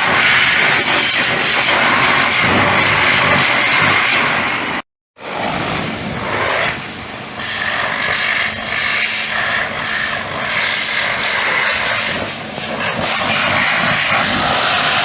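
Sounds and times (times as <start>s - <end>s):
pressure washer motor hum: 0.0s - 15.0s
pressure washer spraying hiss: 6.3s - 15.0s.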